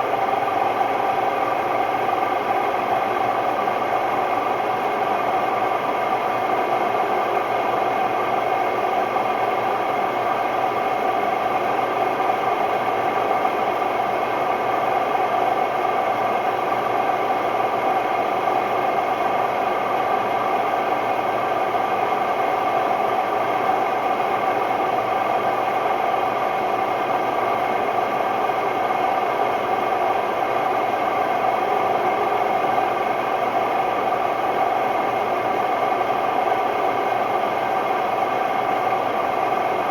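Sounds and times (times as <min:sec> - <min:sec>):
washing machine spinning with rattle: 0:00.0 - 0:39.9.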